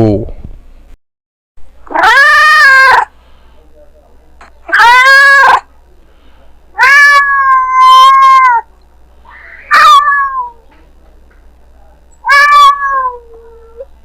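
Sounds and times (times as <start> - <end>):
cat meowing: 1.9 - 3.1, 4.7 - 5.7, 6.8 - 8.7, 9.3 - 10.6, 12.2 - 13.9.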